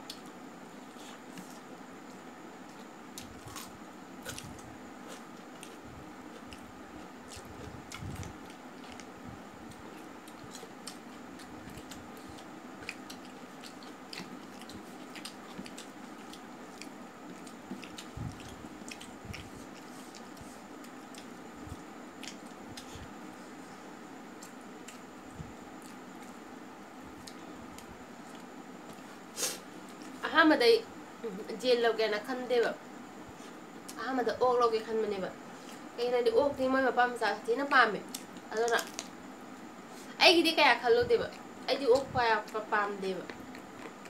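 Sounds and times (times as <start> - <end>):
man chewing with wet smacks: 0.0 - 23.2, 24.3 - 26.4, 27.1 - 29.1, 43.3 - 44.0.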